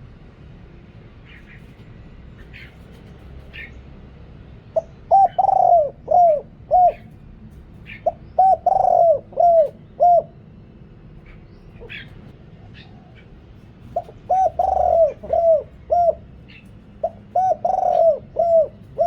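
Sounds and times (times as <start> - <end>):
small birds chirping: 1.2 - 3.9, 4.5 - 19.0
dove cooing: 4.8 - 7.2, 7.8 - 10.5, 11.2 - 19.0.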